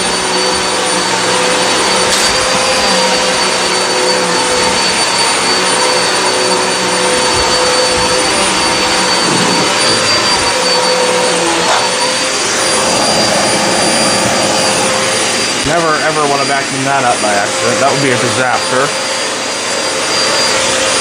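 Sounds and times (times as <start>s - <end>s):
vacuum cleaner running on carpet: 0.0s - 21.0s.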